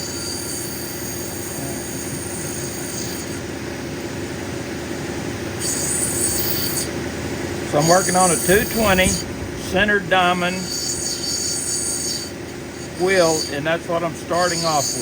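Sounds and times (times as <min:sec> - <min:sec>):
stone grinding hiss: 0:00.0 - 0:03.4, 0:05.6 - 0:06.9, 0:07.8 - 0:15.0
motor hum: 0:00.0 - 0:15.0.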